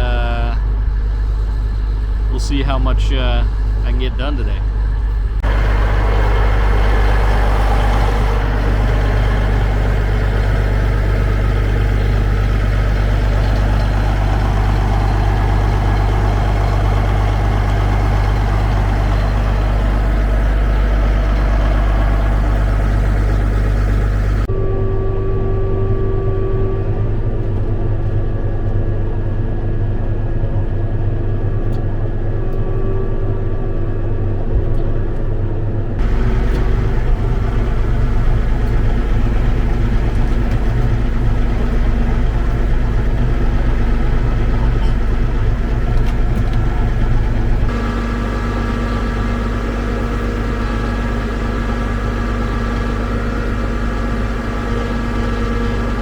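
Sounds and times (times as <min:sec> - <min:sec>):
tractor diesel engine running: 0:00.0 - 0:24.5, 0:36.0 - 0:56.0.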